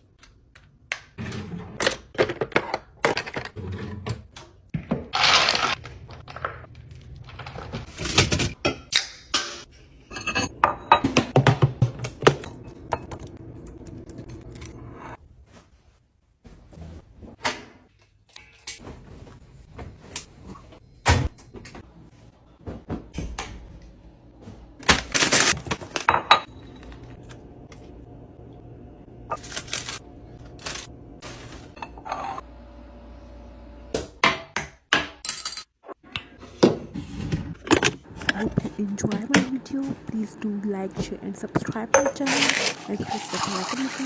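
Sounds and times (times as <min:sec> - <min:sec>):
containers clinking and knocking: 0:38.2 - 0:44.0.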